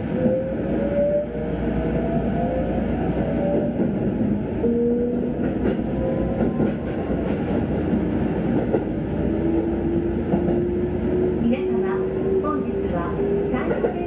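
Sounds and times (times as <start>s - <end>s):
train wheels rumbling on track: 0.0s - 14.0s
light rail clacks: 5.4s - 9.1s, 10.2s - 10.8s, 11.4s - 14.0s.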